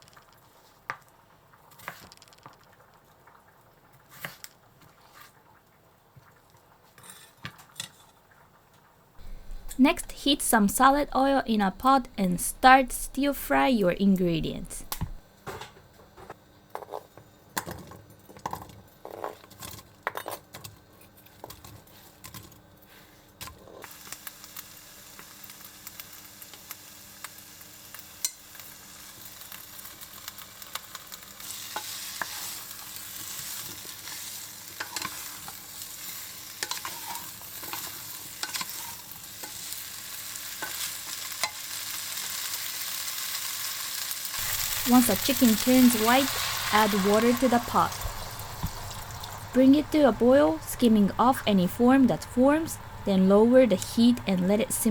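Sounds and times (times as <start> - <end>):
food sizzling in oil: 9.2 - 15.2, 23.8 - 50.6.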